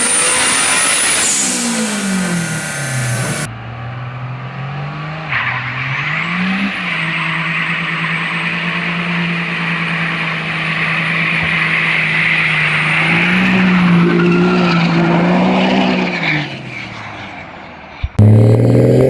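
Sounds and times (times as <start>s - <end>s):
engine at high revs: 0.0s - 16.6s, 18.1s - 19.0s.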